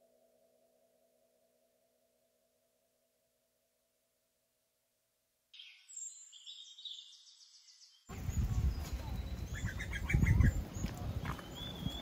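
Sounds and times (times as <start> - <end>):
birds whistling and chirping: 5.6 - 12.0.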